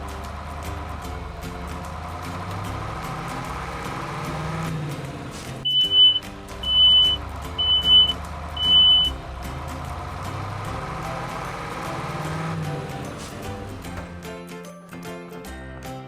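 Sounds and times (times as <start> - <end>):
background music: 0.0 - 16.0
high electronic beeps: 5.7 - 9.2.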